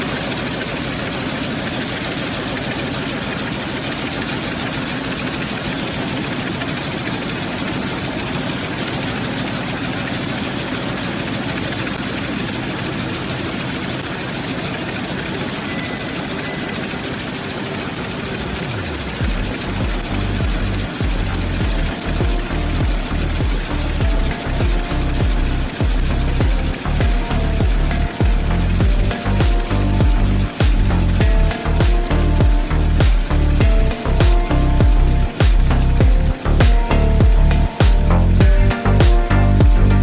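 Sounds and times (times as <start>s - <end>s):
embroidery machine clatter: 0.0s - 40.0s
music with bass line: 19.0s - 40.0s.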